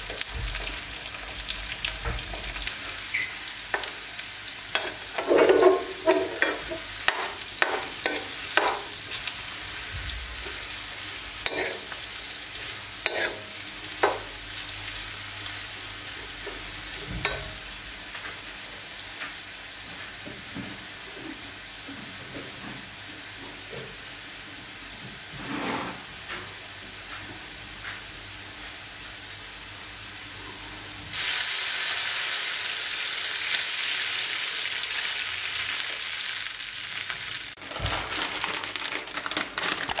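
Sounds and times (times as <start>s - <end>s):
water hissing in hot pan: 0.0s - 19.7s, 31.1s - 37.6s
potatoes and onions sizzling in oil: 0.0s - 37.6s
metal spatula scraping a wok: 13.1s - 13.4s, 25.4s - 26.1s.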